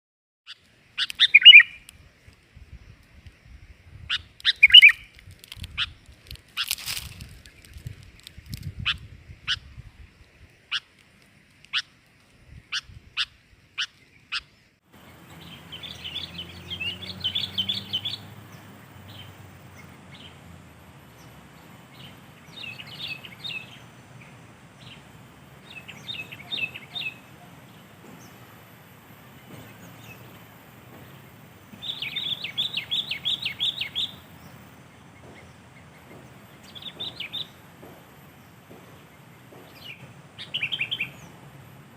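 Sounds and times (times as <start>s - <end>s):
bird sharp single notes: 0.5s - 1.9s, 4.4s - 5.2s
steady hiss: 0.5s - 41.9s
rapid bubbly bird chirping: 1.0s - 1.8s, 4.0s - 5.1s.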